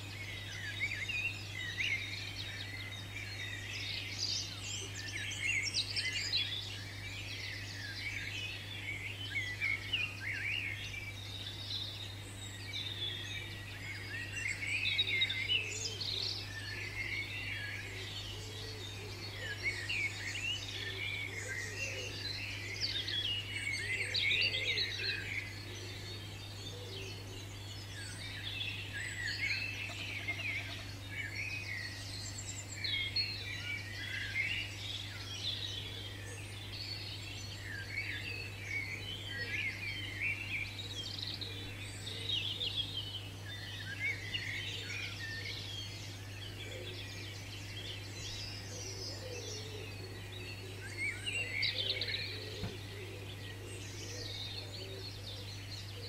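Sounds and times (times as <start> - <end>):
small birds chirping and singing: 0.0 - 56.0.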